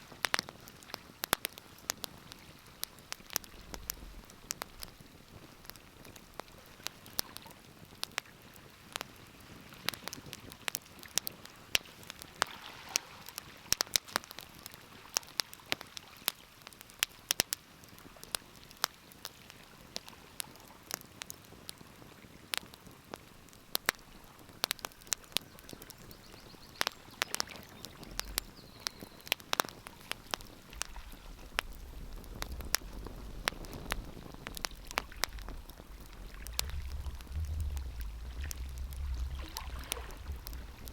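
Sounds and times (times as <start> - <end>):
wood fire crackling: 0.0 - 12.5, 16.6 - 40.9
low rumble: 30.8 - 40.9.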